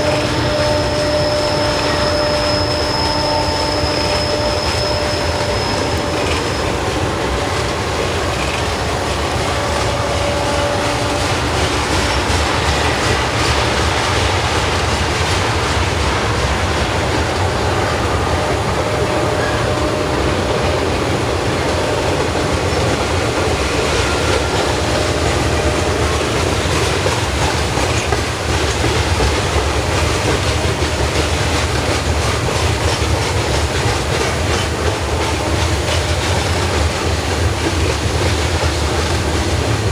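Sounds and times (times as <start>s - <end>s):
high wheel squeals: 0.0s - 7.1s
freight train rolling past: 0.0s - 39.9s.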